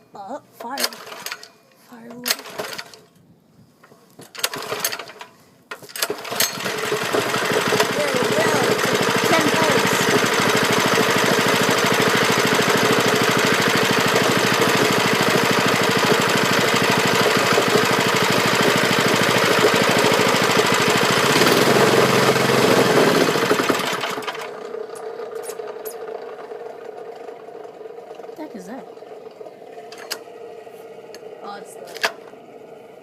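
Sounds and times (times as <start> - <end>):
small engine running fast: 6.0 - 33.0.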